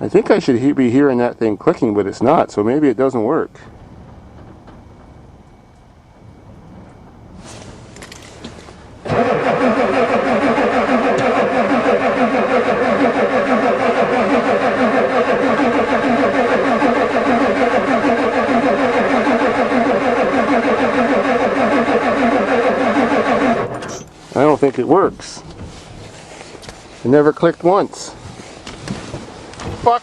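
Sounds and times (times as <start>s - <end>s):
starter motor cranking engine: 7.6s - 25.3s.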